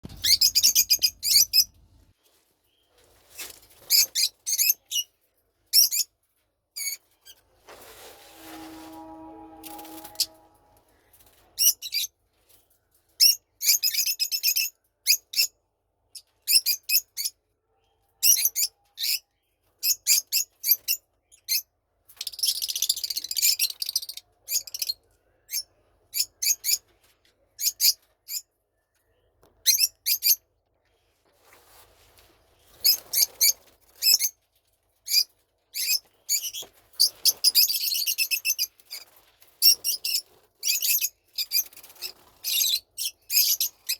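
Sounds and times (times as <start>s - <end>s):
lovebirds chirping: 0.1s - 2.1s.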